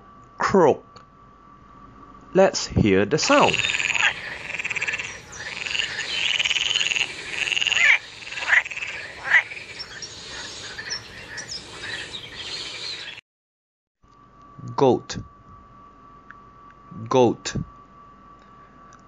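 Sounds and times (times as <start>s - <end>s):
frog croaking: 3.2s - 13.2s.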